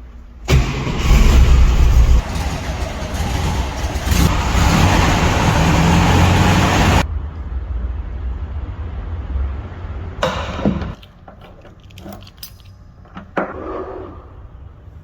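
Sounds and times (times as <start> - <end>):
car engine revving then idling: 0.5 - 7.1.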